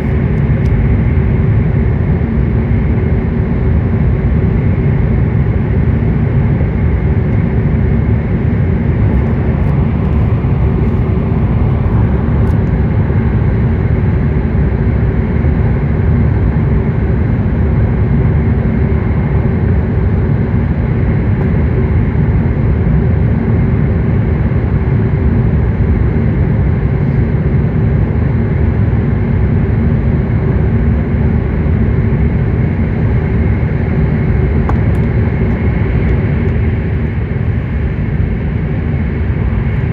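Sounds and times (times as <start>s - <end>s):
faint steady whine: 0.0s - 39.9s
train running gear rumble: 32.4s - 39.9s.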